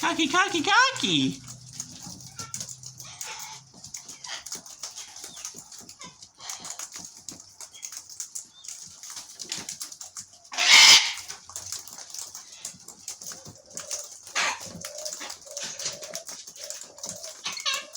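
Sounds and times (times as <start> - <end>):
birds twittering: 0.0 - 6.9, 13.3 - 17.9
birds pecking ticks: 0.0 - 17.9.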